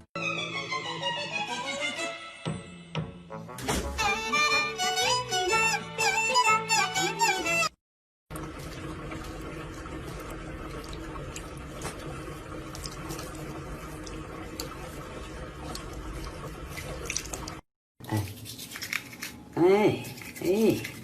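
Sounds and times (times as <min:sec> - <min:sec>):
music: 0:00.2 - 0:07.8
running water from tap: 0:08.3 - 0:17.7.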